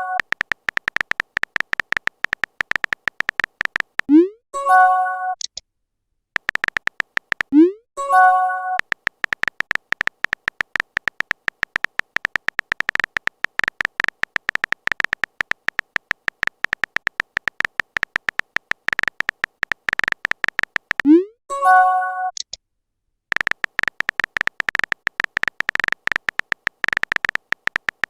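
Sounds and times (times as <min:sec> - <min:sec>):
electronic typing tick-beeps: 0:00.0 - 0:05.5, 0:06.4 - 0:22.5, 0:23.3 - 0:28.0.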